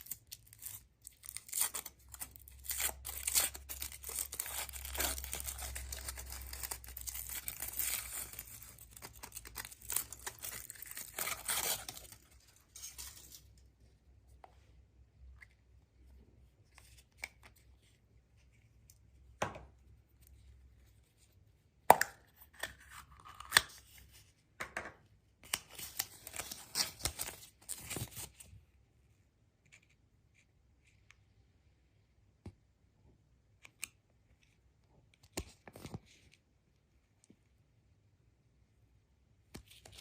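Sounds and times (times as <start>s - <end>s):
packaging tearing and crinkling: 0.0s - 13.3s.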